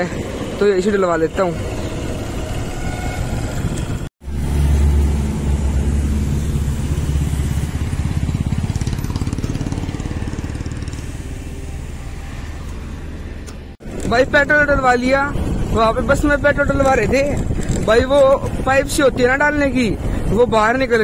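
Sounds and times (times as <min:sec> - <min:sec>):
motorcycle engine running: 0:04.7 - 0:13.2.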